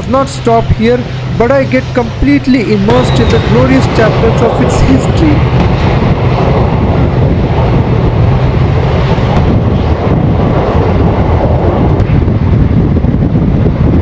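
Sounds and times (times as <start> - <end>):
train rumbling on track: 0.0 - 14.0
wind on microphone: 0.0 - 14.0.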